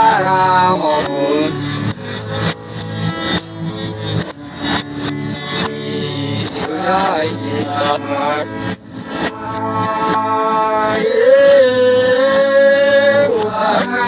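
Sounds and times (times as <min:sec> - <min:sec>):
person singing: 0:00.0 - 0:01.6, 0:05.5 - 0:14.0
instrumental accompaniment: 0:00.0 - 0:14.0.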